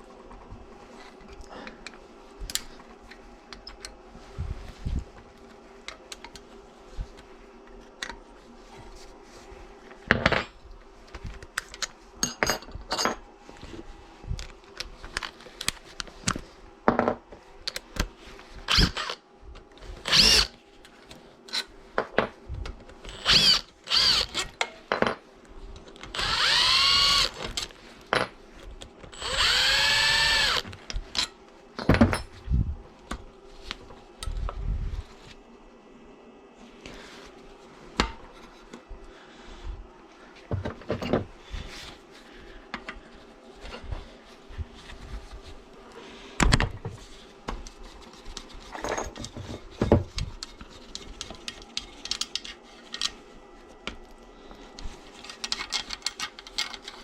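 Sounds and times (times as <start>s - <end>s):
power drill running: 18.7s - 19.2s, 20.0s - 20.5s, 23.1s - 24.5s, 26.1s - 27.5s, 29.1s - 30.7s
tools clicking and knocking: 55.3s - 57.0s.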